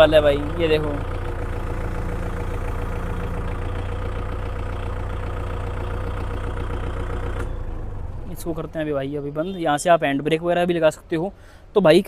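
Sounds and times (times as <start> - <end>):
tractor diesel engine rumble: 0.0 - 12.0.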